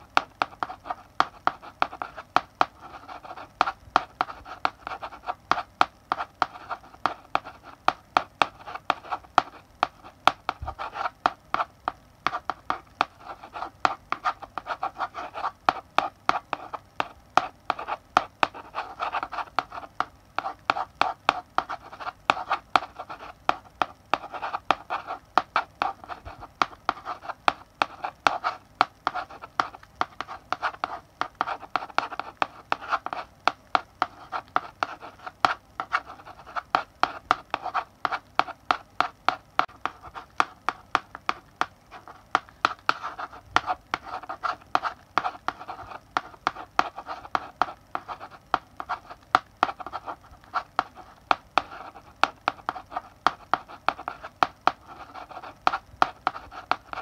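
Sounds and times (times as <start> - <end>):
chalk scratching: 0.0 - 57.0
chalk tapping on blackboard: 0.0 - 57.0.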